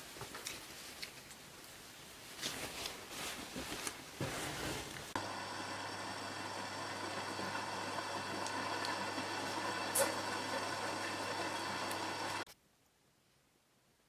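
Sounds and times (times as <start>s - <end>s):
steady machine hum: 5.2s - 12.5s.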